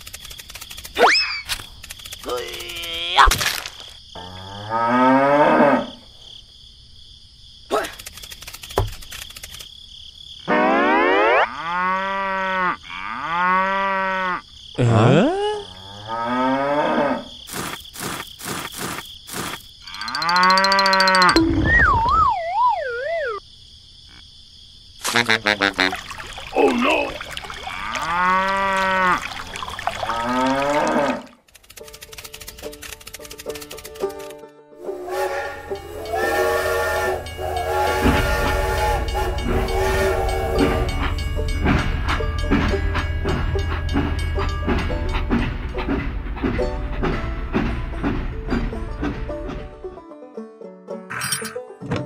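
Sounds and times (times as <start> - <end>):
toy train rumble and clatter: 0.0 - 3.2, 7.9 - 9.7, 17.5 - 21.4, 31.4 - 34.4
wavering cartoon tone: 10.5 - 11.5, 20.0 - 23.4
cow mooing: 11.4 - 14.4, 15.2 - 17.3, 19.9 - 21.3, 27.5 - 31.4
steam train whistle blasts: 34.8 - 41.2.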